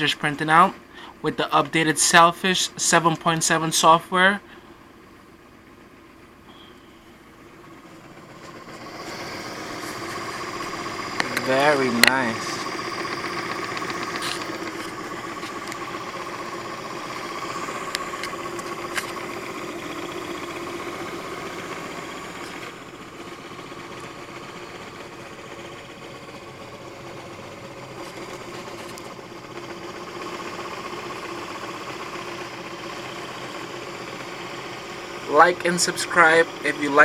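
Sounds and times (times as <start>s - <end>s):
stepper motors whining: 6.3s - 37.0s
sharp clicks: 11.1s - 15.9s.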